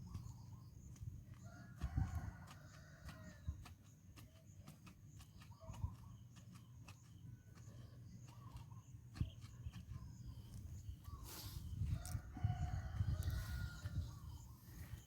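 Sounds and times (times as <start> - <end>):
rooster crowing: 11.9 - 14.2.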